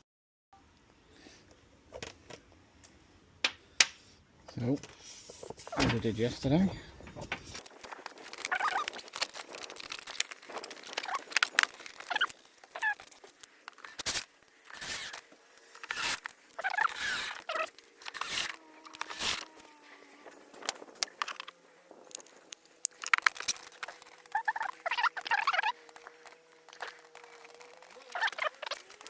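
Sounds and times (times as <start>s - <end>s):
plastic parts clicking and knocking: 7.0s - 29.0s
short plastic squeaks: 7.6s - 21.6s, 23.0s - 29.0s.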